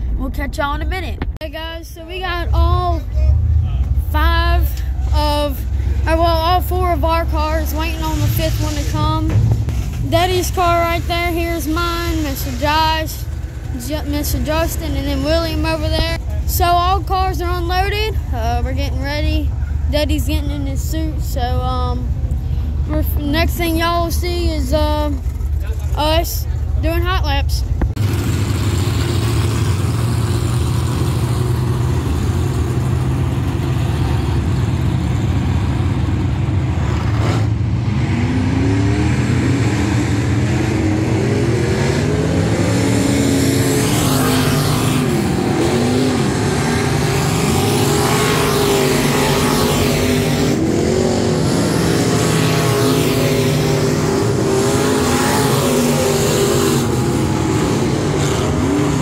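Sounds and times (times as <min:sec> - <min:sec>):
low engine drone: 0:00.0 - 0:26.8
race car engines passing: 0:02.1 - 0:59.0.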